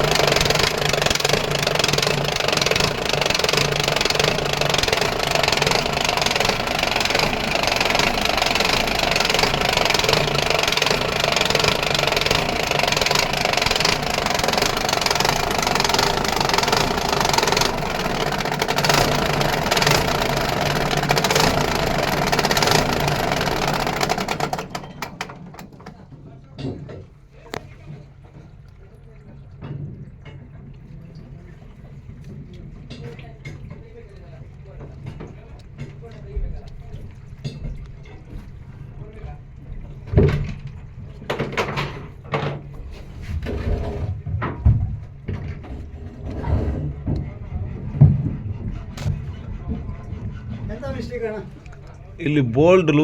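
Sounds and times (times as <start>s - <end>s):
marine engine running: 0.0s - 26.1s.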